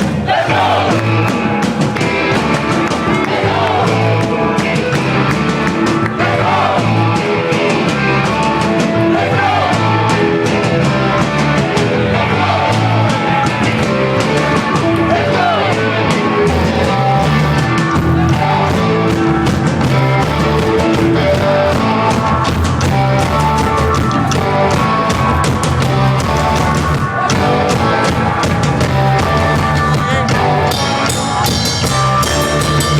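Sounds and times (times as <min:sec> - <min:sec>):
drums: 0:00.0 - 0:32.9
electric guitars: 0:00.0 - 0:32.9
person singing: 0:16.5 - 0:31.0.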